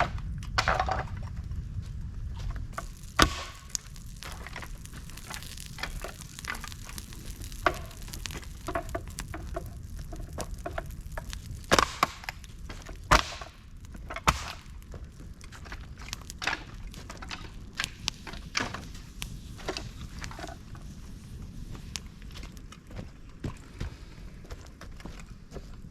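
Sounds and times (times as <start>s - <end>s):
low steady fire rumble: 0.0s - 25.9s
campfire crackling: 2.7s - 23.3s
sharp loud pops: 2.8s - 15.0s.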